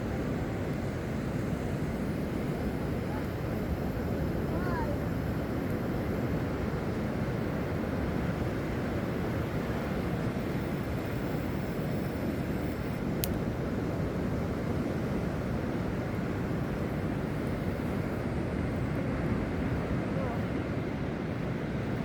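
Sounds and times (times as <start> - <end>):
surf on the shore: 0.0 - 22.0
wind: 0.0 - 22.0
sharp click: 13.2 - 13.4.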